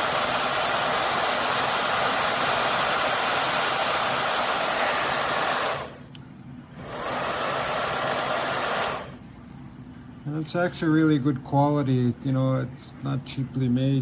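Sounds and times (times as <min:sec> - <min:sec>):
hair dryer blowing: 0:00.0 - 0:06.1, 0:06.8 - 0:09.2.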